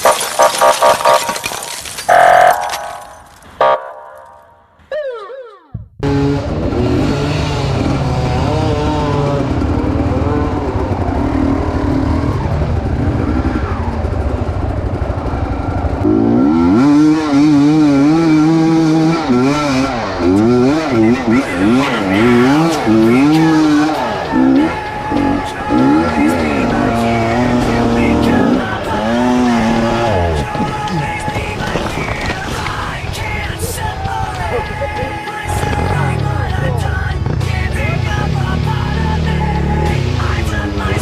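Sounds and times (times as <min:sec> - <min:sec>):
motorcycle engines revving: 0:06.0 - 0:41.0.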